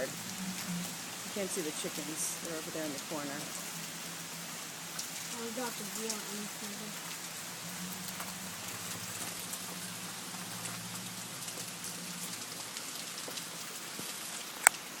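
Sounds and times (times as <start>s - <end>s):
rain falling: 0.0s - 15.0s
low hum: 0.1s - 1.3s.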